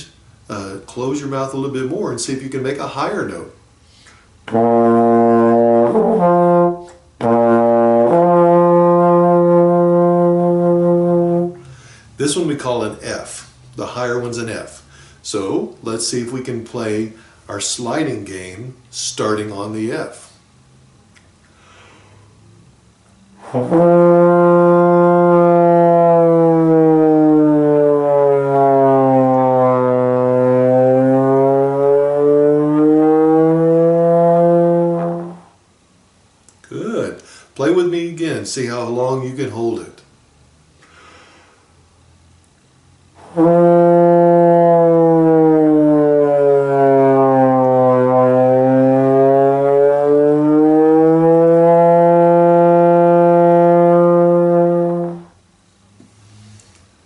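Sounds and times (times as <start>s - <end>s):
breath: 3.8s - 4.4s, 11.6s - 12.2s, 14.8s - 15.2s, 17.2s - 17.5s, 21.5s - 22.3s, 37.2s - 37.6s, 40.8s - 41.8s, 56.1s - 56.9s
trombone sliding note: 4.5s - 11.9s, 23.4s - 35.6s, 43.2s - 55.4s
trombone lip slurs: 23.4s - 25.0s, 43.2s - 44.7s, 56.0s - 57.0s.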